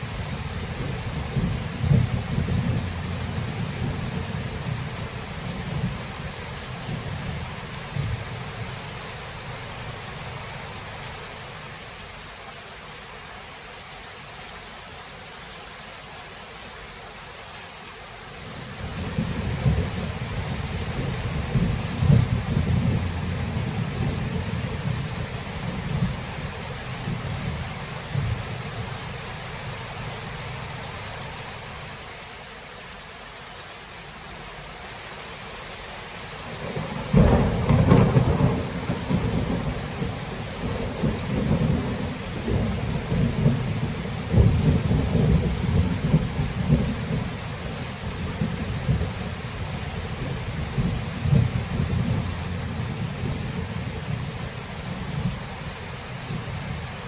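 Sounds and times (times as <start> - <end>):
rain hissing: 0.0 - 57.0
thunder rumbling: 0.2 - 9.0, 18.8 - 29.0, 36.5 - 55.5
loud thunder crack: 36.6 - 39.9.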